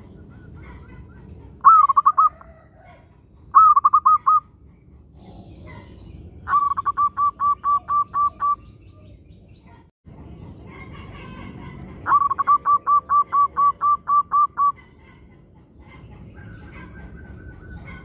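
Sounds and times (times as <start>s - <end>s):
dove cooing: 0.0s - 4.4s, 6.5s - 8.6s, 11.0s - 18.0s.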